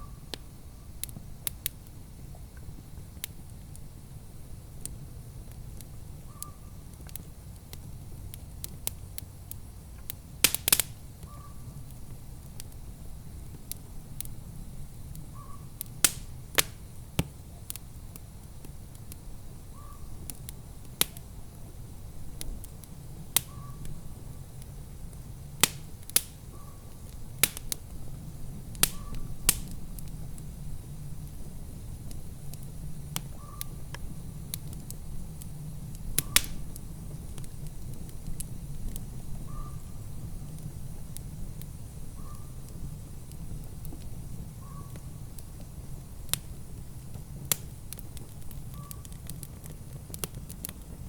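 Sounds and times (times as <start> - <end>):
low rumble of fire: 0.0 - 51.0
wood fire crackling and popping: 0.3 - 51.0.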